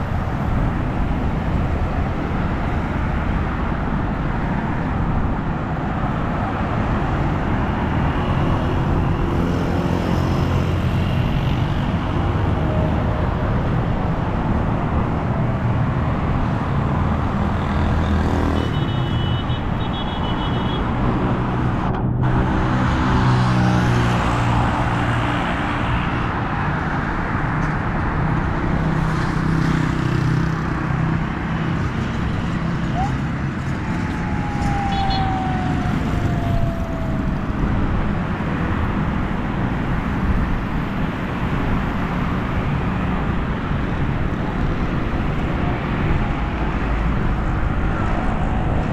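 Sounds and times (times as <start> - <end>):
road traffic on wet road: 0.0 - 48.9.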